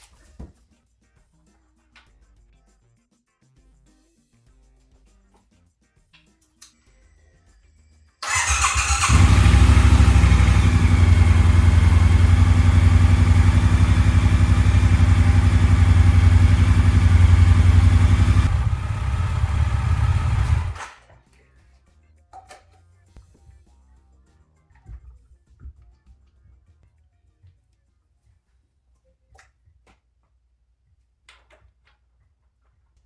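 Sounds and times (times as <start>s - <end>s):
motorcycle engine idling: 8.2s - 20.9s
motorcycle engine starter: 8.2s - 21.0s.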